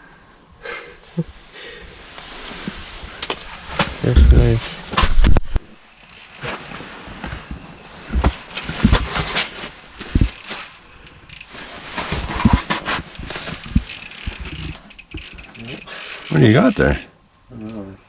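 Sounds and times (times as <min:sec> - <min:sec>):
handling knocks and clicks: 0:08.1 - 0:17.1.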